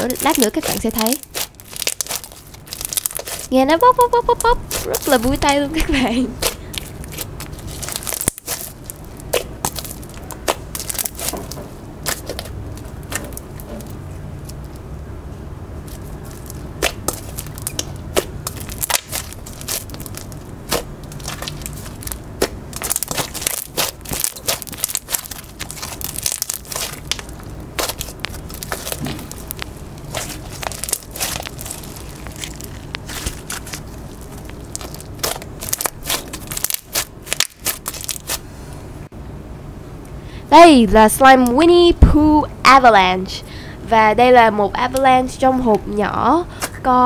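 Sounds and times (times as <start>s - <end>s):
slime beads popping and crackling: 0.0s - 14.8s, 15.9s - 38.4s.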